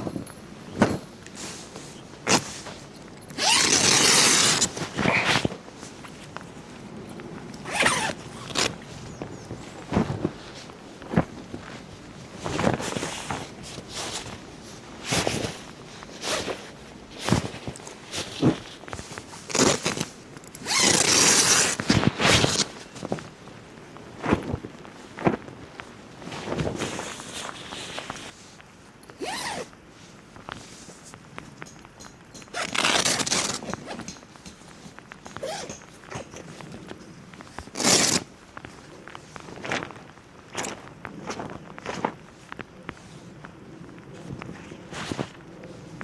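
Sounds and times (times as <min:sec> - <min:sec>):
zipper rasp: 0:03.4 - 0:05.5, 0:07.7 - 0:08.7, 0:19.5 - 0:22.7, 0:32.5 - 0:34.1, 0:35.4 - 0:36.3, 0:37.7 - 0:38.3.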